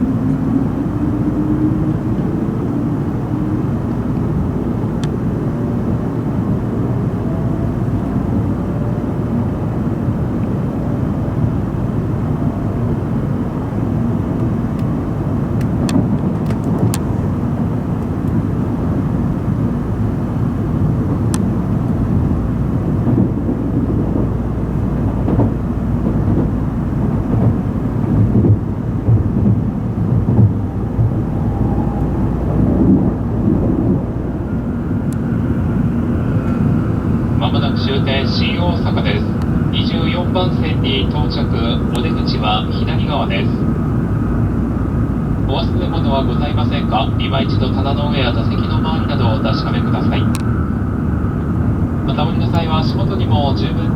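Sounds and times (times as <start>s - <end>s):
train low rumble: 0.0s - 53.9s.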